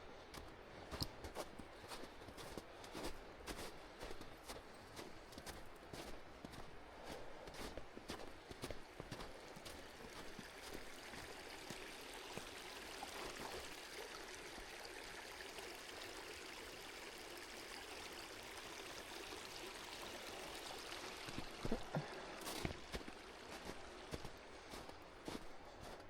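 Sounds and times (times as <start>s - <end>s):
stream water rushing: 8.3s - 25.8s.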